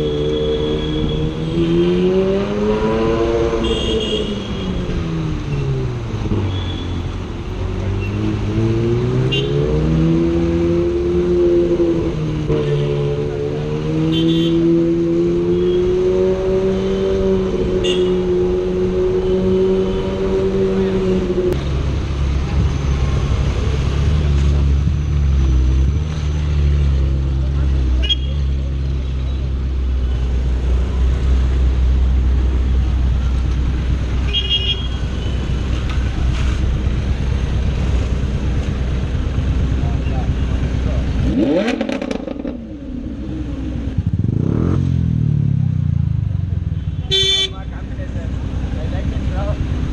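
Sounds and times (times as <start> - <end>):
road traffic rumble: 0.0 - 49.9
car horn toot: 3.5 - 4.6, 34.3 - 35.4, 46.8 - 47.7.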